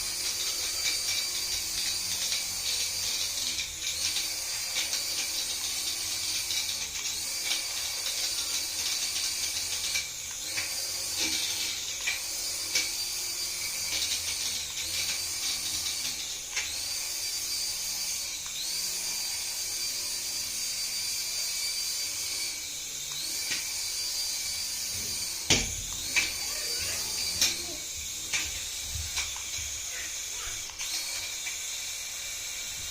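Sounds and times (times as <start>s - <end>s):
toy electric motor whining: 0.0s - 32.9s.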